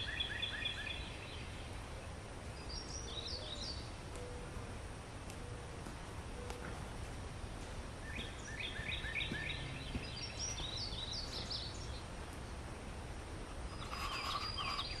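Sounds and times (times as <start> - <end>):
small bird whistling song: 0.0 - 1.5, 2.6 - 4.4, 8.1 - 12.0, 13.7 - 15.0.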